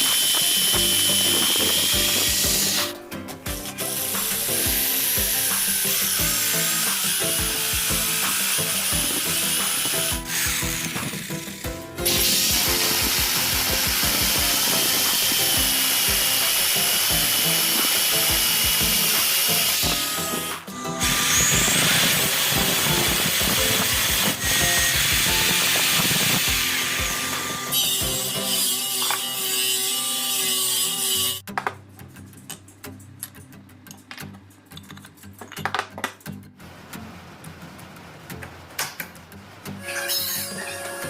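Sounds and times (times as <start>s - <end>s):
power tool whining on wood: 0.0s - 3.0s, 3.6s - 31.4s, 39.8s - 41.0s.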